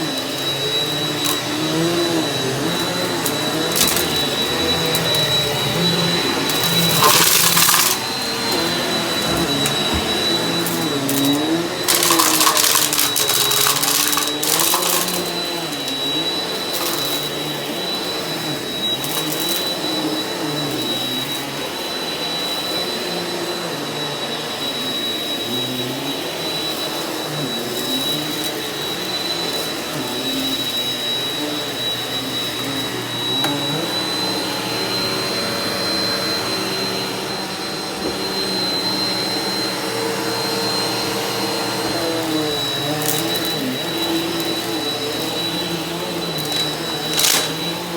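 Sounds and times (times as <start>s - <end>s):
vacuum cleaner running over carpet: 0.0s - 47.9s
debris crackling in vacuum: 2.2s - 17.3s, 42.4s - 47.9s.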